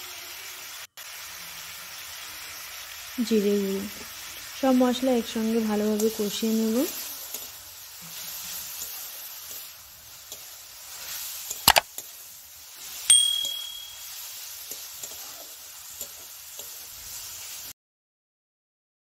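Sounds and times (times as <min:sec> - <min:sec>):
onions sizzling in oil: 0:00.0 - 0:17.8
metal spatula scraping a pan: 0:05.8 - 0:13.1, 0:14.0 - 0:17.7
metallic ringing strike: 0:13.1 - 0:14.2.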